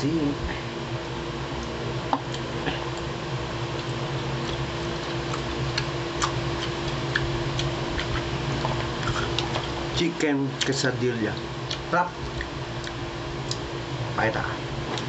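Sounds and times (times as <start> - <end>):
appliance humming: 0.0 - 15.0
person chewing food: 2.2 - 3.1, 3.7 - 9.8, 11.6 - 13.6.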